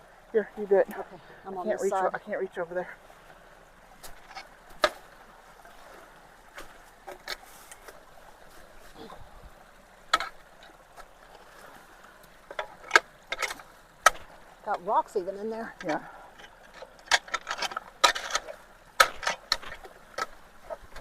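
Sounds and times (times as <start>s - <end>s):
water trickling: 0.0s - 21.0s
sticks and rocks knocking: 4.0s - 5.1s, 12.4s - 14.8s, 15.8s - 21.0s.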